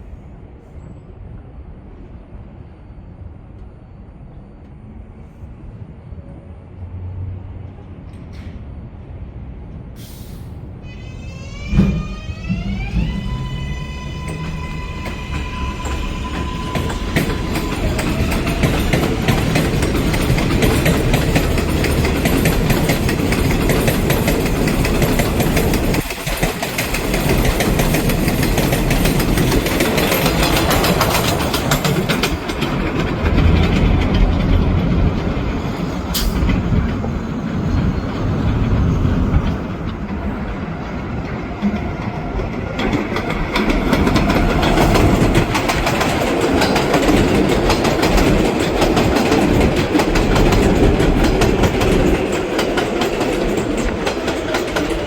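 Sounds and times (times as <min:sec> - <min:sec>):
train rumbling on elevated track: 0:00.0 - 0:55.0
wheels clicking over rail joints: 0:11.7 - 0:37.2, 0:37.8 - 0:55.0.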